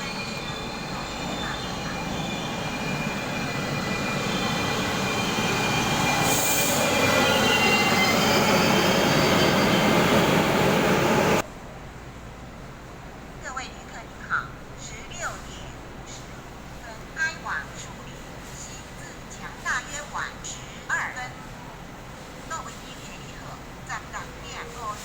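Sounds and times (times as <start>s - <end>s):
train wheels rumbling and squealing: 0.0s - 11.4s.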